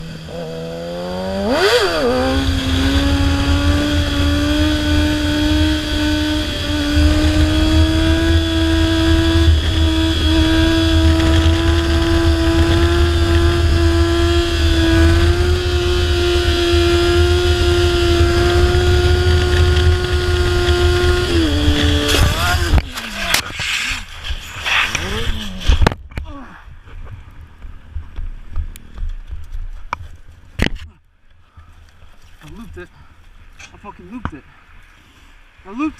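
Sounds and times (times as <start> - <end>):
motorcycle engine revving high: 0.0 - 23.4
motorcycle crash knocks and scraping: 21.7 - 26.0.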